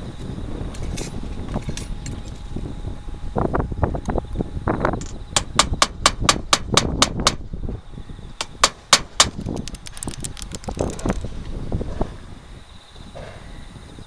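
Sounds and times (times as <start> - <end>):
fasteners striking roof: 5.0 - 7.4, 8.4 - 10.3.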